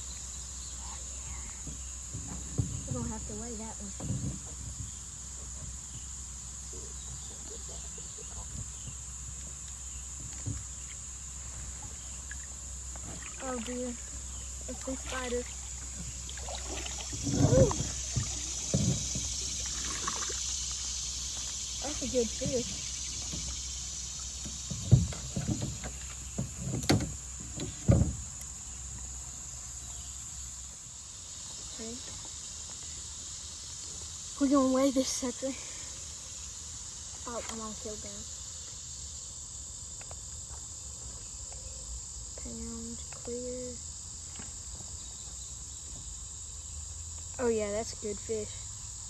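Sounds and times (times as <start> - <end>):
high-pitched insect drone: 0.0 - 49.0
knocks against a kayak: 1.6 - 5.8, 10.2 - 10.9, 15.9 - 20.3, 24.4 - 28.4.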